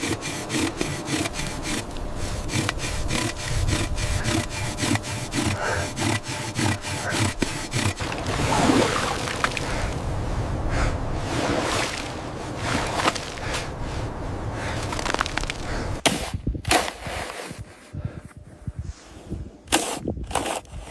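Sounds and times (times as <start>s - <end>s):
hand saw cutting: 0.0s - 8.2s, 19.7s - 20.9s
rough uneven scraping: 0.0s - 10.0s, 11.2s - 16.0s, 16.7s - 18.2s.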